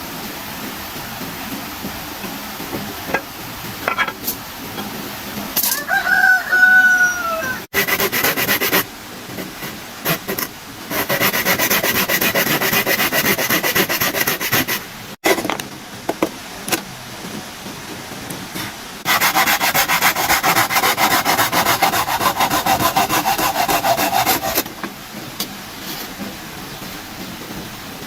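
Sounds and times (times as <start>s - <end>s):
rooster crowing: 5.6s - 7.7s
scraping strokes on wood: 7.7s - 16.8s, 18.5s - 26.4s.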